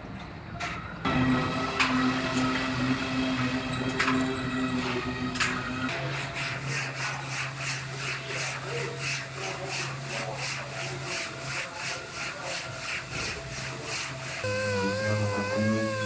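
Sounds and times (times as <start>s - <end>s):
hand sanding strokes: 5.9s - 16.0s.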